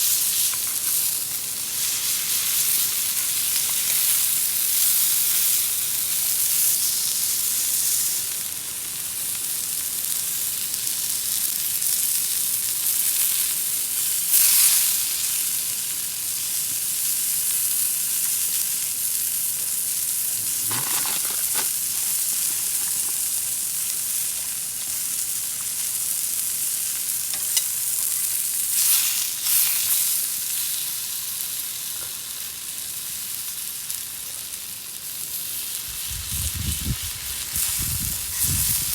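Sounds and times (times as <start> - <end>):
food sizzling in a pan: 0.0 - 38.9
scrapes or clicks: 20.4 - 23.3.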